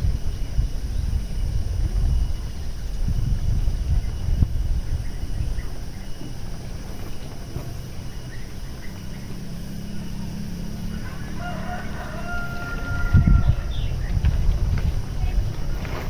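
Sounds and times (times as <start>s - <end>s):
steady low rumble: 0.0s - 12.2s, 12.8s - 16.0s
rooster crowing: 10.8s - 14.1s.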